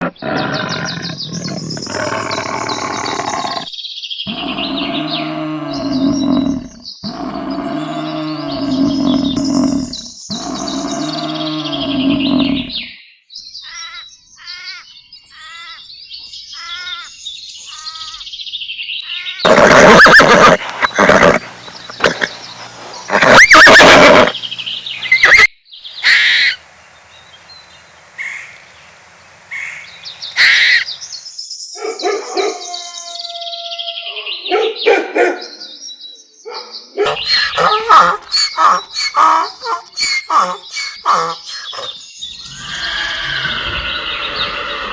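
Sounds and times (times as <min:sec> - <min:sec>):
loud harsh animal calls: 0:19.5 - 0:25.5, 0:37.1 - 0:42.0
quick bird chirps: 0:37.1 - 0:41.9.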